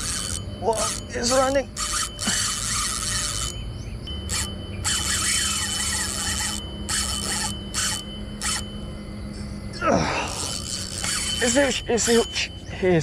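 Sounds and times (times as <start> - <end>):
fishing reel drag buzzing: 0.0 - 9.7, 10.3 - 12.6.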